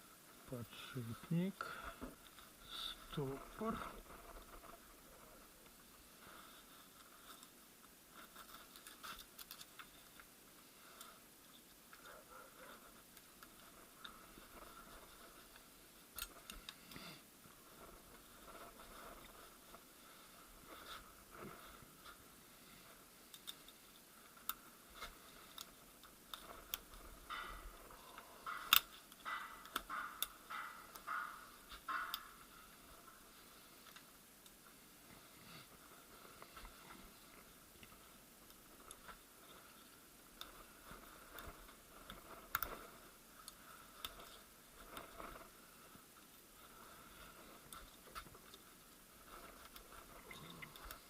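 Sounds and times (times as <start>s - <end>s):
metal parts clicking and tapping: 26.3s - 32.5s.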